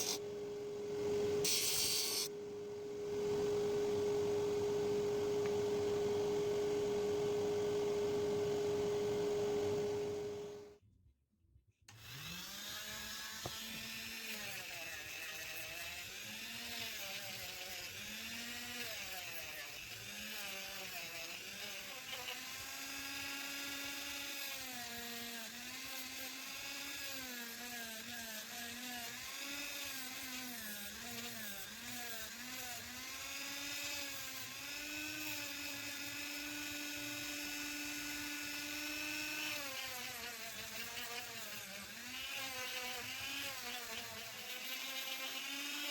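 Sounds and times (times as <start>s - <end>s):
power tool shaping wood: 0.0s - 0.2s, 11.9s - 45.9s.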